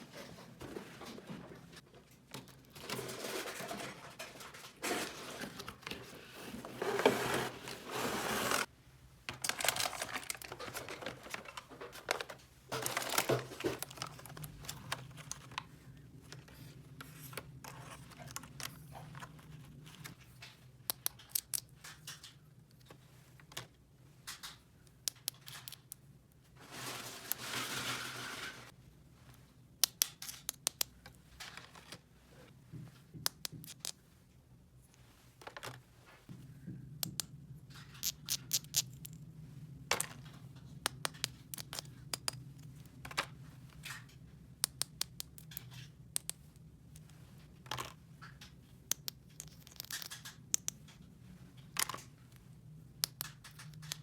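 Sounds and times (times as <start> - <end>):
packaging tearing and crinkling: 9.4 - 11.4.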